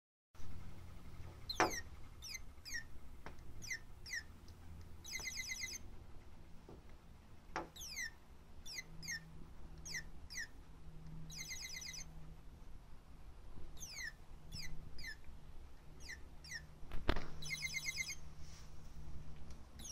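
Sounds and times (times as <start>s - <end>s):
toy bird chirping: 1.5s - 2.9s, 3.6s - 4.3s, 5.0s - 5.9s, 7.7s - 10.5s, 11.3s - 12.1s, 13.8s - 15.3s, 16.0s - 16.7s, 17.4s - 18.2s.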